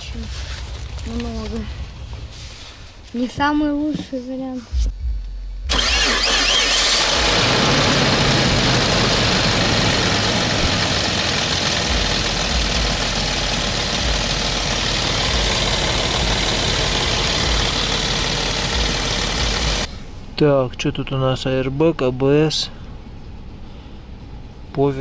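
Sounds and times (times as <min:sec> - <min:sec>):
car engine idling: 0:00.0 - 0:03.1, 0:05.6 - 0:20.5.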